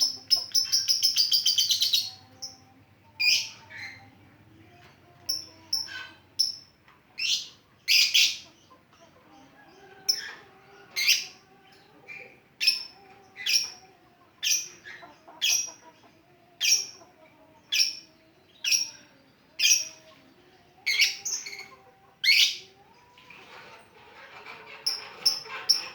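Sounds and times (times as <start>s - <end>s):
bird shrill chirping calls: 0.0s - 2.6s, 3.2s - 4.1s, 5.3s - 8.5s, 11.0s - 11.4s, 14.4s - 15.8s, 17.7s - 20.1s, 20.8s - 22.7s.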